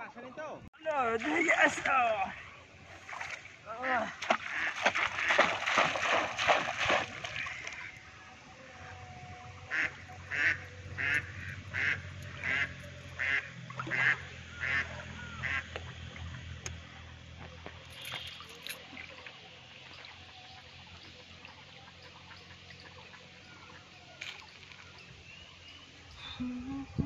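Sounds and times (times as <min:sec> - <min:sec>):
low steady hum: 0:00.9 - 0:27.0
water splashing: 0:01.0 - 0:08.2
bird calling: 0:09.7 - 0:15.7.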